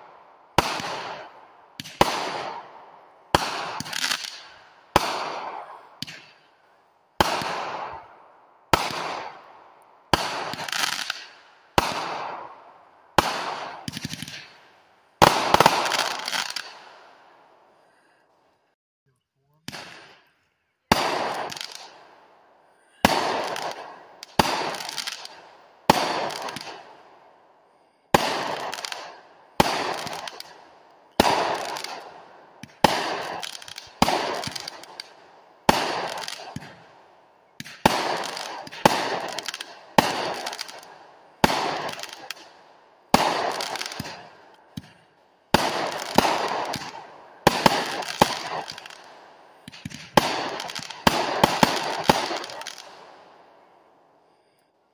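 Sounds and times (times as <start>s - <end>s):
firework bangs: 0.0s - 6.5s, 7.2s - 18.2s, 19.6s - 53.7s
spray of small firework pops: 6.0s - 6.4s, 28.2s - 32.0s, 32.6s - 36.8s, 37.6s - 42.5s, 43.2s - 45.0s, 45.6s - 53.0s.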